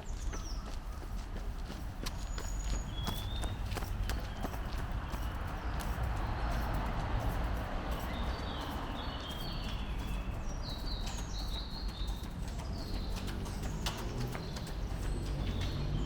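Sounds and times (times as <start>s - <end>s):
birds chirping: 0.0s - 16.0s
footsteps on a path: 0.0s - 16.0s.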